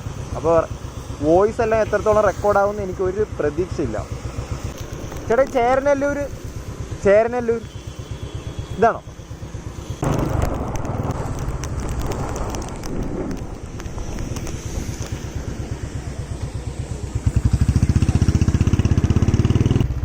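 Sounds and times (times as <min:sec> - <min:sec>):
motorcycle engine accelerating: 0:00.0 - 0:20.0
wind buffeting microphone: 0:10.0 - 0:19.4.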